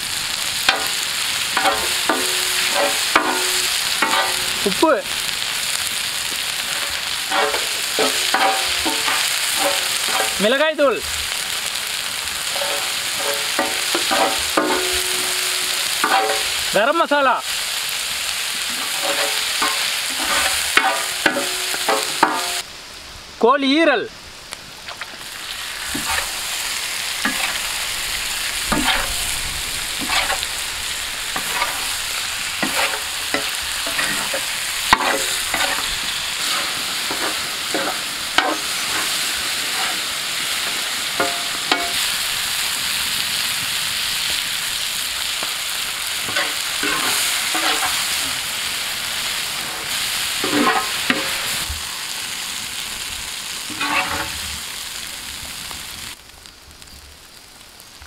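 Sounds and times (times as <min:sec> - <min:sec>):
food sizzling in oil: 0:00.0 - 0:23.3, 0:24.2 - 0:58.0
metal spatula scraping a pan: 0:00.7 - 0:04.7, 0:06.7 - 0:10.4, 0:12.4 - 0:16.7, 0:18.6 - 0:22.6, 0:25.9 - 0:26.4, 0:27.2 - 0:27.8, 0:28.7 - 0:29.3, 0:30.0 - 0:30.6, 0:31.3 - 0:42.1, 0:46.2 - 0:48.5, 0:49.6 - 0:51.6, 0:53.7 - 0:54.4.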